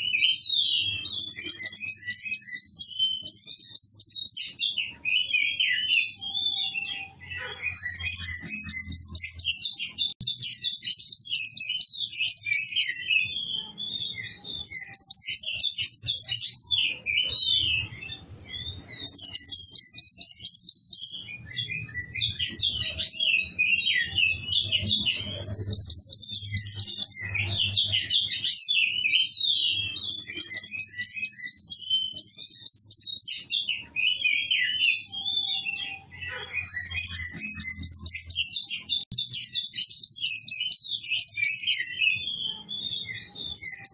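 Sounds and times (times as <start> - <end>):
songbird buzzy trills: 0.0 - 34.8
twittering chirps: 0.0 - 43.9.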